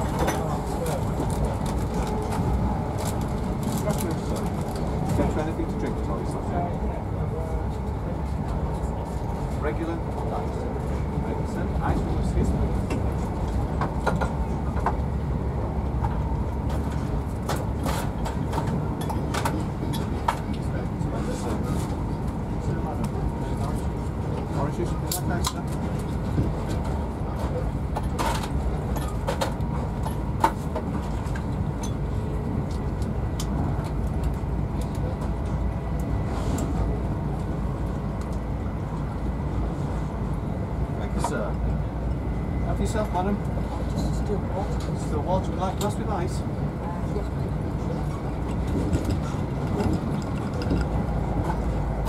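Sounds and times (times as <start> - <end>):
train carriage rumble: 0.0 - 52.0
train wheels on rails: 42.7 - 52.0.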